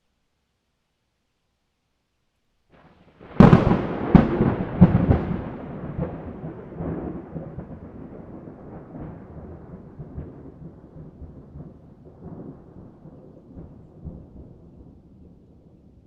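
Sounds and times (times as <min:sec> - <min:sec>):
thunder cracks: 0:03.2 - 0:15.0
rolling thunder rumble: 0:03.2 - 0:16.0.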